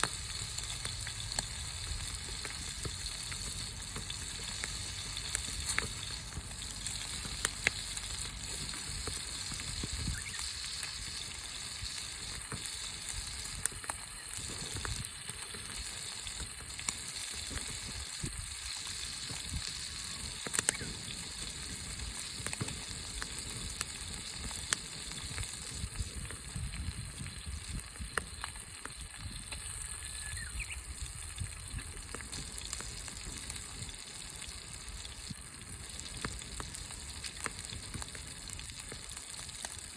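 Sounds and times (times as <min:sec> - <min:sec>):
fire hissing: 0:00.0 - 0:39.9
wood fire crackling: 0:00.0 - 0:39.9.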